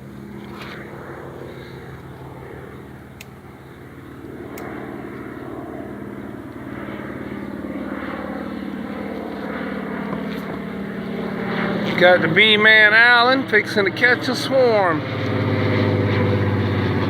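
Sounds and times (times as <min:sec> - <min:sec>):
bee swarm buzzing: 0:00.0 - 0:17.0
faint clicks: 0:03.2 - 0:03.4, 0:04.5 - 0:05.3.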